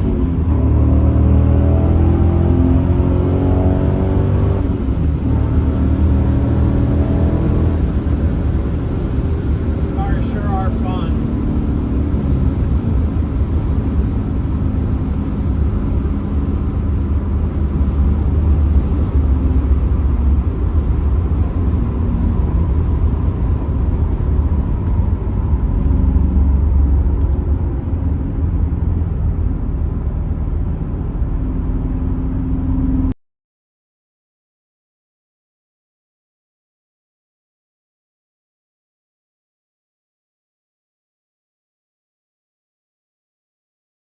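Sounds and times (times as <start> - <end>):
car engine cruising: 0.0 - 33.2
road noise: 0.0 - 33.2.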